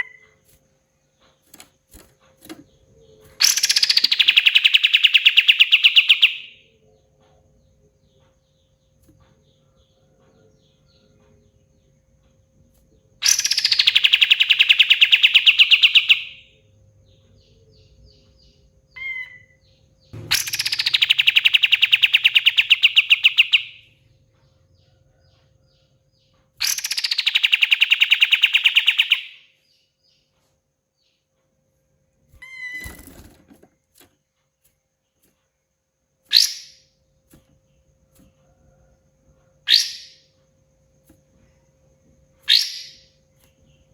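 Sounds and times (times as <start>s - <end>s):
bird chirps: 0.0s - 31.5s, 32.3s - 33.4s, 35.0s - 43.9s
bird rattling trills: 1.3s - 6.4s, 20.2s - 23.8s, 26.6s - 29.3s, 32.4s - 34.1s
dull thump: 20.2s - 20.8s
short sharp bird calls: 20.2s - 23.9s.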